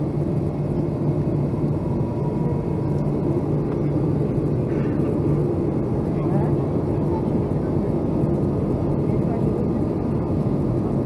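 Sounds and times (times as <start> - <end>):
airliner cabin engine rumble: 0.0 - 11.0
faint steady whine: 0.0 - 11.0.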